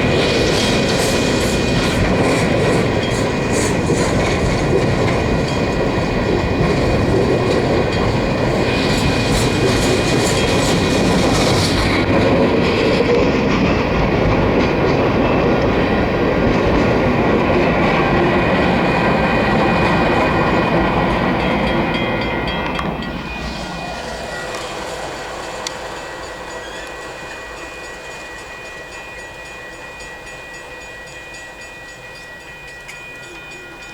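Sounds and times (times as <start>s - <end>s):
train wheels clattering on track: 0.0s - 33.9s
wheel squeal: 21.9s - 29.2s.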